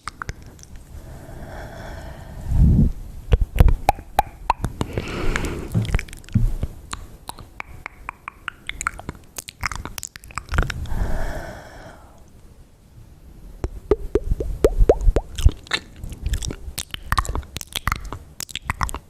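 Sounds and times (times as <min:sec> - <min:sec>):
wet lip and tongue clicks: 0:00.0 - 0:00.9, 0:03.3 - 0:05.0, 0:05.8 - 0:11.0, 0:13.6 - 0:19.0
soft hissing: 0:04.7 - 0:06.7.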